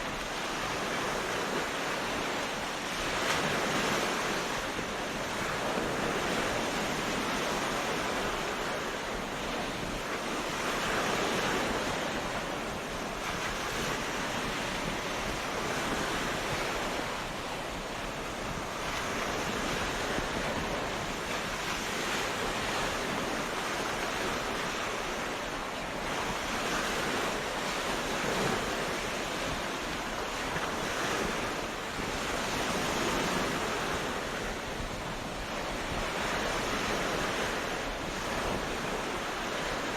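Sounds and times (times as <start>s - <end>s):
sea waves washing onto beach: 0.0s - 39.9s.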